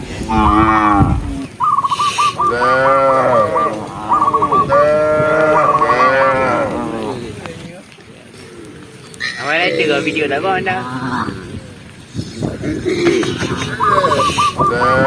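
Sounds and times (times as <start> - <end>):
cattle mooing: 0.3 - 7.5, 8.4 - 11.8, 12.4 - 15.0
higher stuttering call: 0.4 - 6.8, 12.8 - 15.0.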